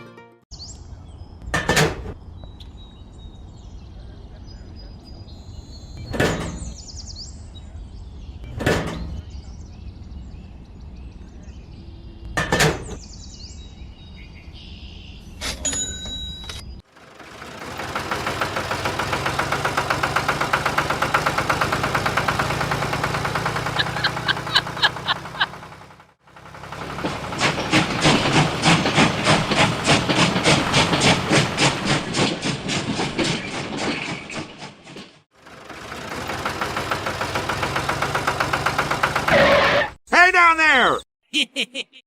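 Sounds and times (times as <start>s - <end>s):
small engine knocking: 16.9s - 33.6s, 35.3s - 39.4s.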